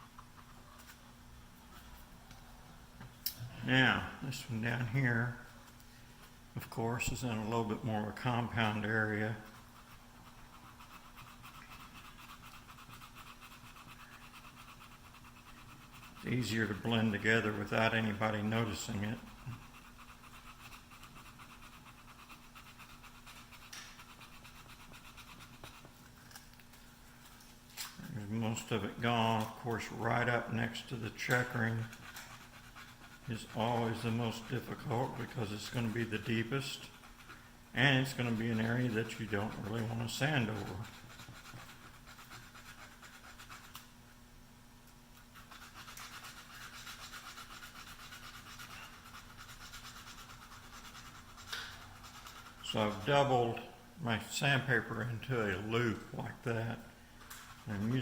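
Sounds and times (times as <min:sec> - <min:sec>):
sandpaper scratching on wood: 0:08.5 - 0:25.9, 0:28.6 - 0:43.9, 0:45.4 - 0:53.2, 0:57.4 - 0:58.0.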